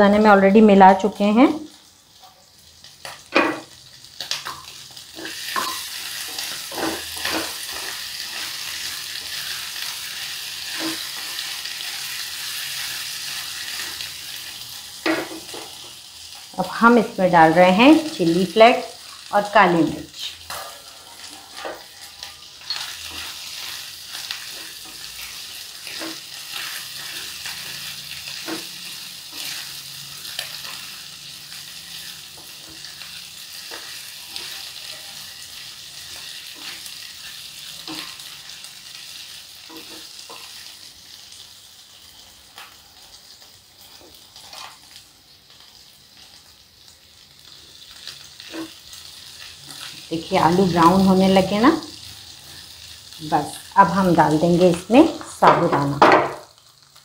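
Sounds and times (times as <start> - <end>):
potatoes sizzling in hot oil: 0.0 - 57.0
wooden spatula scraping pan: 20.5 - 25.2.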